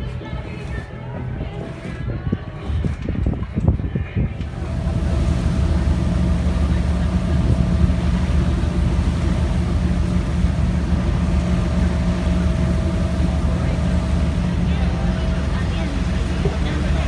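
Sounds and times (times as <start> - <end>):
vehicle motor drone: 4.4 - 17.0.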